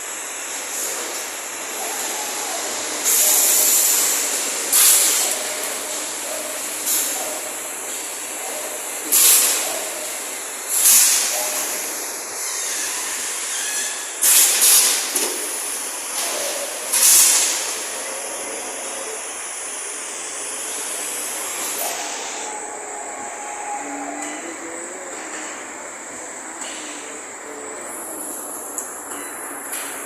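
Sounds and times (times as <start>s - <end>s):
loud hissing blasts: 0.0s - 23.8s
machinery steady hiss: 0.0s - 30.0s.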